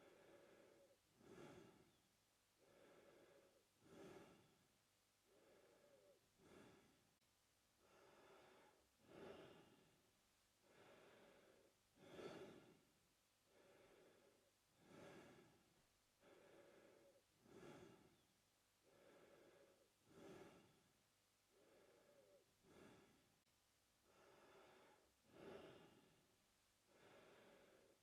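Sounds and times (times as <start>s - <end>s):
man breathing through mouth: 0.0s - 2.0s, 2.6s - 4.6s, 5.3s - 7.0s, 7.8s - 9.9s, 10.6s - 12.8s, 13.5s - 15.6s, 16.2s - 18.2s, 18.8s - 20.9s, 21.5s - 23.2s, 24.1s - 26.2s.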